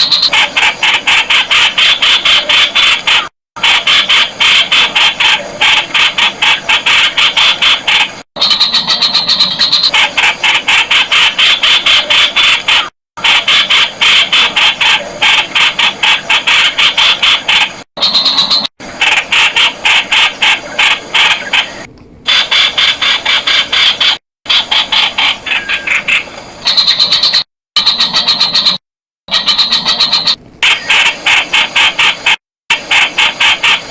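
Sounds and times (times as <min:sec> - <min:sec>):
bulbul calling: 0:00.0 - 0:00.6, 0:06.2 - 0:10.1, 0:16.9 - 0:18.7, 0:21.4 - 0:31.0.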